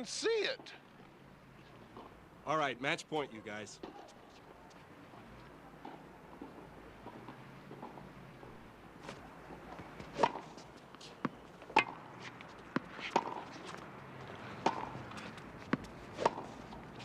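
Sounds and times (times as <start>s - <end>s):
racquets hitting tennis ball: 5.8s - 17.0s
ball bouncing on court: 15.6s - 16.5s.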